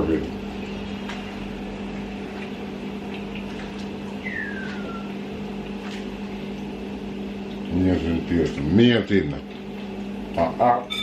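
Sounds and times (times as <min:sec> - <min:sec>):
steady low hum: 0:00.0 - 0:11.0
short falling whistle: 0:04.2 - 0:05.1.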